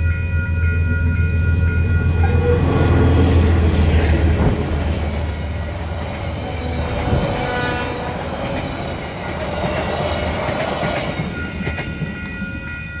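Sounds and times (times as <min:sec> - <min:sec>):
level crossing bells ringing: 0:00.0 - 0:03.8, 0:10.3 - 0:13.0
train wheels rumbling on rails: 0:00.7 - 0:13.0.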